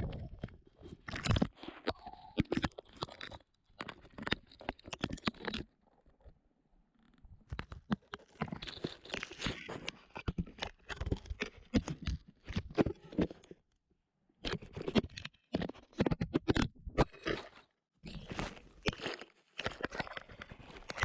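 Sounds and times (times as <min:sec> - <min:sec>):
bird beak biting and scraping plastic: 0:14.5 - 0:21.0.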